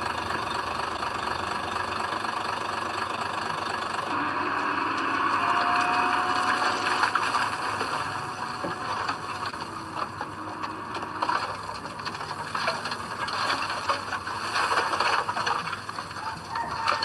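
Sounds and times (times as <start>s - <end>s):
diesel engine running: 0.0s - 17.0s
steel tracks clattering and squeaking: 0.0s - 17.0s.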